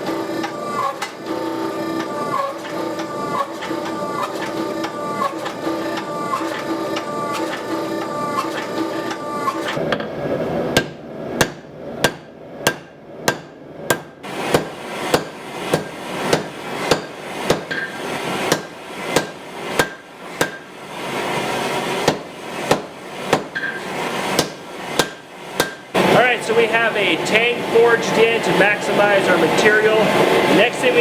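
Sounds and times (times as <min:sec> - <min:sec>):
hammer striking hot steel on anvil: 0:10.8 - 0:20.7, 0:22.0 - 0:25.9.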